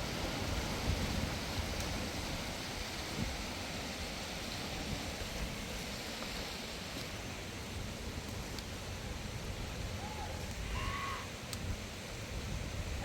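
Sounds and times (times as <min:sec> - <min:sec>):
blizzard wind rushing: 0:00.0 - 0:13.0
wind buffeting microphone: 0:00.0 - 0:13.0.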